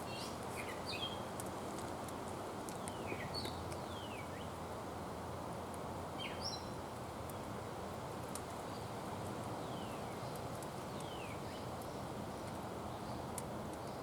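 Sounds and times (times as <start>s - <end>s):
bird chirps: 0.0s - 1.2s, 6.2s - 6.8s
outdoor background hiss: 0.0s - 14.0s.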